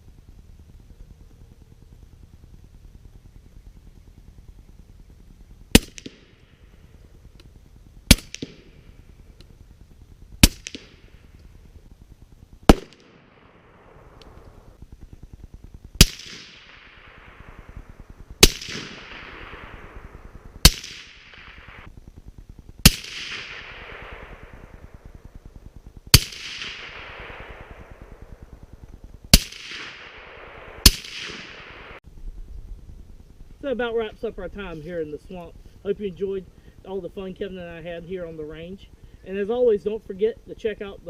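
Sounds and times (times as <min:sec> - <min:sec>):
suppressed rifle shots: 0:05.7 - 0:07.5, 0:08.1 - 0:09.5, 0:10.4 - 0:11.5, 0:12.6 - 0:14.7, 0:16.0 - 0:21.9, 0:22.8 - 0:32.0.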